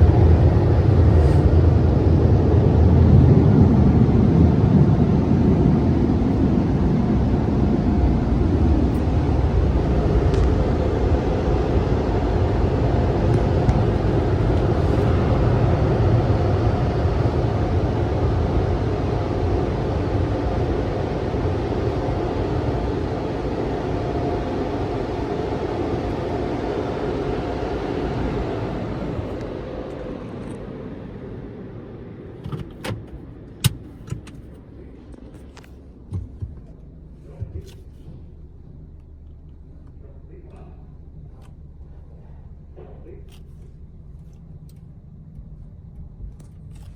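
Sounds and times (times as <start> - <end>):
car wash dryer blowers: 0.0 - 44.7
sharp clicks and knocks: 32.4 - 34.6, 35.2 - 38.1.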